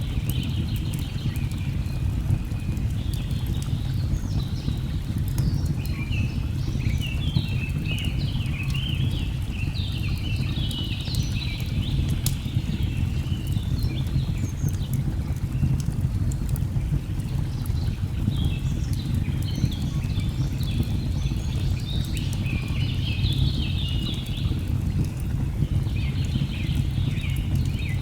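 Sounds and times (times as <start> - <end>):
wood fire crackling: 8.6 - 28.0.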